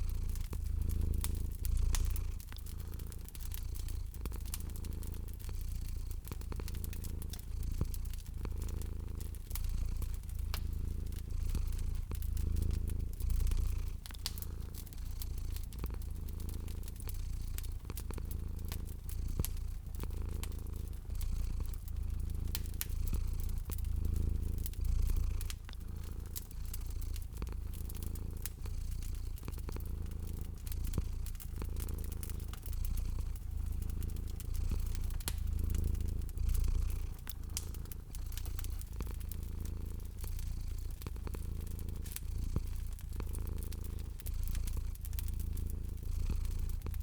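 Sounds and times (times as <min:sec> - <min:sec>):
cat purring: 0:00.0 - 0:47.0
wood fire crackling: 0:00.0 - 0:47.0.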